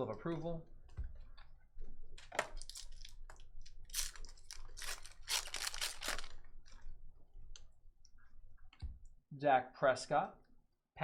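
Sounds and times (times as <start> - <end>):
trading cards rustling: 4.0 - 6.5.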